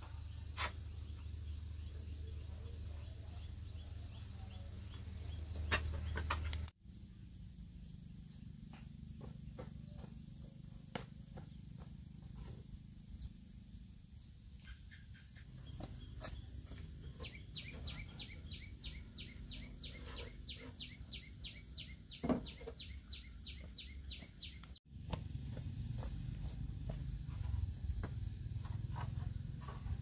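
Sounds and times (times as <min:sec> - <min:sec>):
insect droning: 0:00.0 - 0:30.0
bird chirping: 0:01.0 - 0:06.7, 0:14.5 - 0:24.8.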